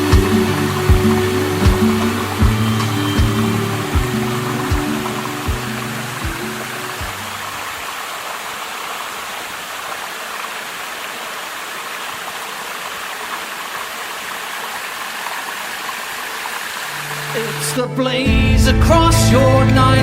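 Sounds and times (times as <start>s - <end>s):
music with a beat: 0.0s - 7.2s
stream water rushing: 0.0s - 18.0s.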